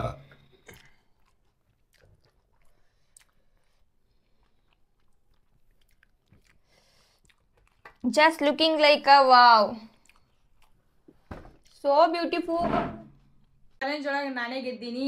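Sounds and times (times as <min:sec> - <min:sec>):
faint chewing: 0:00.4 - 0:08.2, 0:09.8 - 0:11.8.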